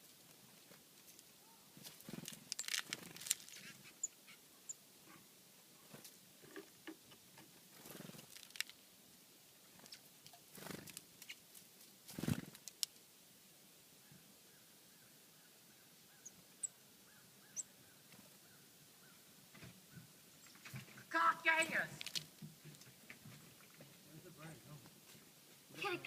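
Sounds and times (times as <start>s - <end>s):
birds pecking and scuffling: 0.0s - 8.9s, 9.5s - 13.1s, 16.2s - 26.0s
muffled bird calls: 14.0s - 19.3s.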